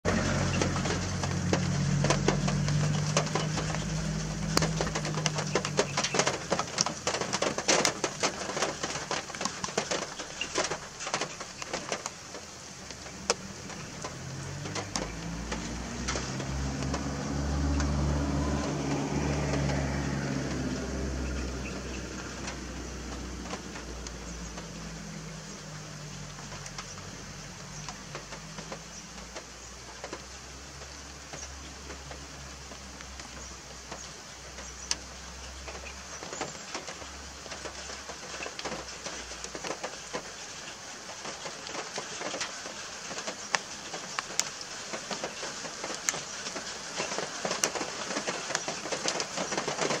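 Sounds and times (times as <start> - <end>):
rain pattering on leaves: 0.0 - 50.0.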